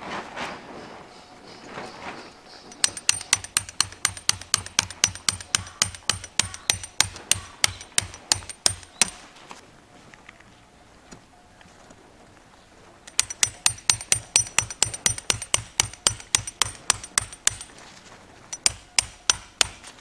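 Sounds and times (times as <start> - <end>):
hammer striking tent stake: 2.7 - 9.3, 13.1 - 17.8, 18.5 - 20.0.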